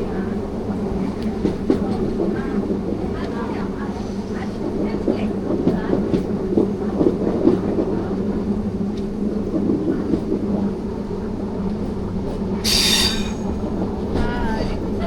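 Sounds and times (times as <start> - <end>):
train rumbling on rails: 0.0 - 15.0
high-pitched squeal: 12.6 - 13.7.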